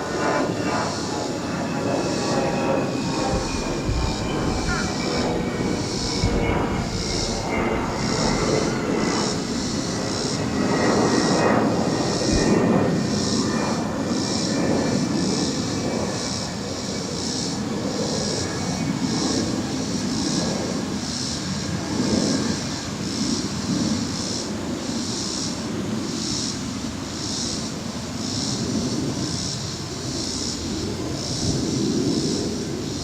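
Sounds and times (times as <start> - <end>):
faint whine: 0.0 - 16.2
pulsing high-pitched buzz: 0.0 - 22.6
airliner taking off rumble: 0.0 - 33.0.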